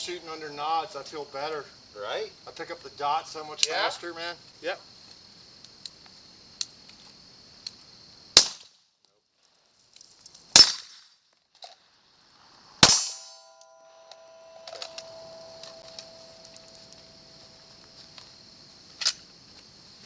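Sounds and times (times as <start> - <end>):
pistol shots: 12.8 - 16.6.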